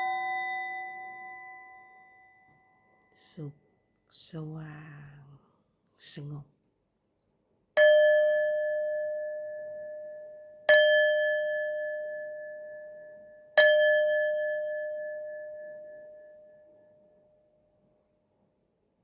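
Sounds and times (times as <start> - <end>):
singing bowl ringing: 0.0 - 3.0, 7.8 - 17.7.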